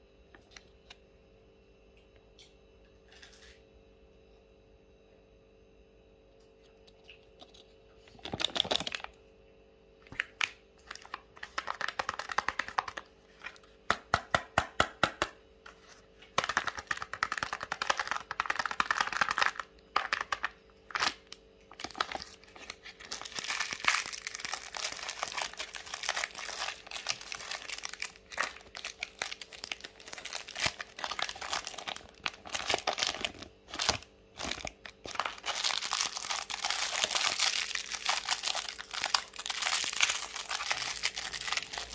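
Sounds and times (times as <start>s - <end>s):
foil wrappers crinkling and tearing: 10.2s - 13.7s, 16.3s - 41.9s.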